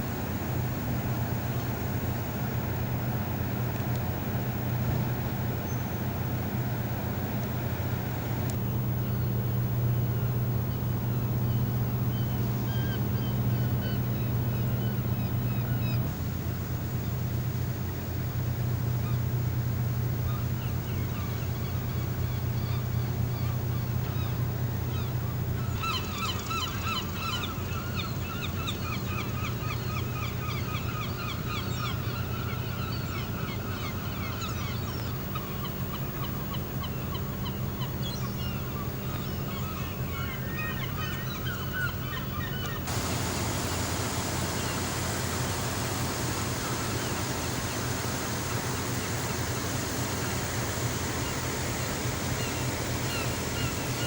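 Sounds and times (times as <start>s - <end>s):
low mechanical hum: 0.0s - 54.0s
birds honking: 41.6s - 54.0s
rushing hiss: 42.9s - 54.0s.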